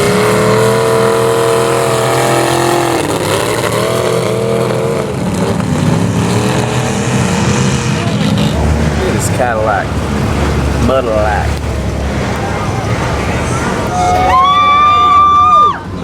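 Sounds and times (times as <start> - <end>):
vehicle engine revving: 0.0 - 14.4.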